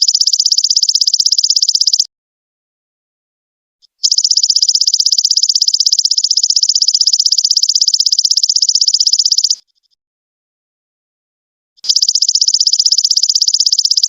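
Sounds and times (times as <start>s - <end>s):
insect trill: 0.0s - 2.0s, 4.0s - 9.6s, 11.8s - 14.0s
faint chirp: 0.0s - 2.1s, 3.8s - 10.0s, 11.8s - 14.0s.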